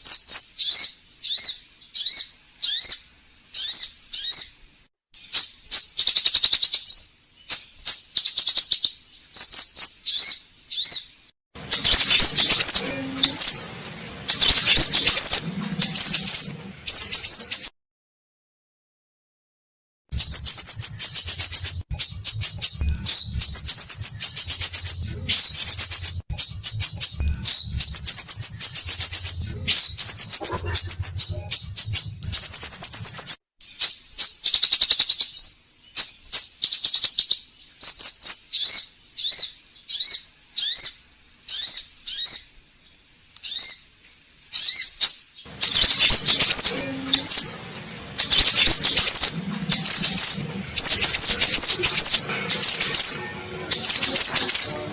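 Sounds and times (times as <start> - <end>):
bird chirping and whistling: 0.0 - 4.6, 5.2 - 13.7, 14.3 - 17.7, 20.2 - 42.5, 44.6 - 54.9.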